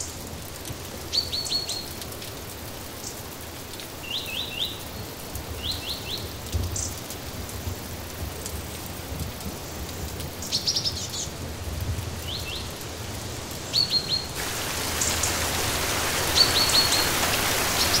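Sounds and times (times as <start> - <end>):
rain hiss: 0.0 - 18.0
songbird chirping: 13.7 - 18.0.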